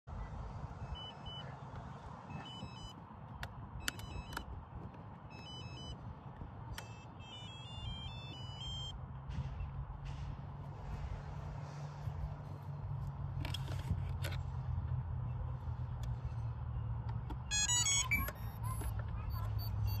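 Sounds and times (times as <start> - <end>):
high electronic beeps: 2.3 - 3.0, 5.3 - 6.0, 6.8 - 9.0, 17.5 - 20.0.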